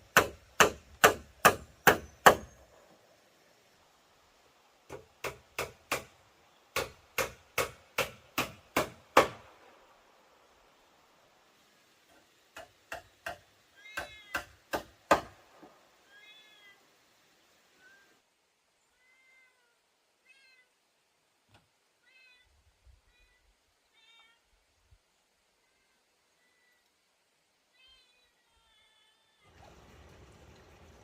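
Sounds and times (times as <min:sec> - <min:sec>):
sharp knocks: 0:00.1 - 0:02.5, 0:14.0 - 0:15.4
meow-like animal calls: 0:13.7 - 0:14.5, 0:16.0 - 0:16.9, 0:17.8 - 0:18.2, 0:18.9 - 0:20.8, 0:22.0 - 0:22.5, 0:23.1 - 0:24.5.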